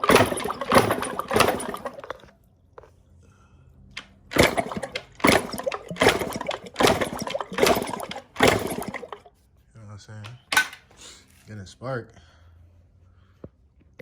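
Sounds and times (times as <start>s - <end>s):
engine kick-start whooshing: 0.0s - 2.2s, 4.3s - 9.3s.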